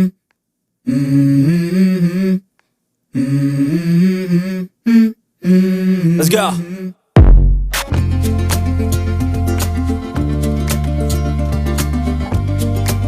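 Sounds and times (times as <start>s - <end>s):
person humming a tune: 0.9s - 2.4s, 3.2s - 6.9s.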